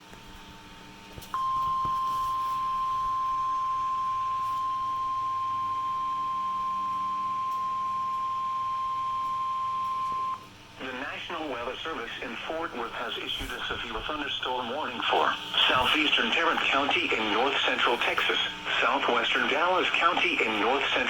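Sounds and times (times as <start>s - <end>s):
steady high alarm beep: 1.4s - 10.4s.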